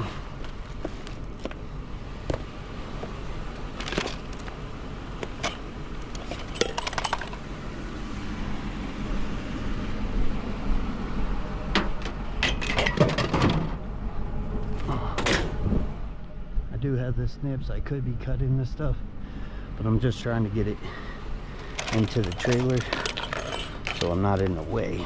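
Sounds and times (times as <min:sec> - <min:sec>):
steady low rumble: 0:00.0 - 0:25.0
scrap metal clanking into trailer: 0:03.6 - 0:04.5, 0:05.3 - 0:07.4, 0:11.8 - 0:13.8, 0:21.6 - 0:24.7.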